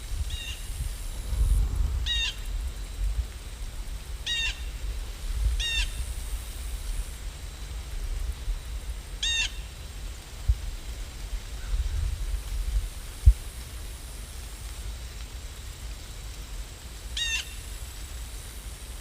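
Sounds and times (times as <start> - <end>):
steady low rumble: 0.0 - 9.2.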